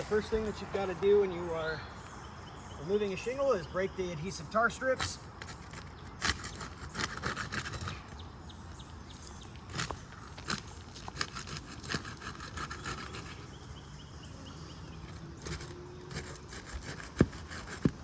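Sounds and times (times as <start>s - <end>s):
pry bar scraping shingles: 4.9s - 8.2s, 9.3s - 13.6s, 15.0s - 18.0s.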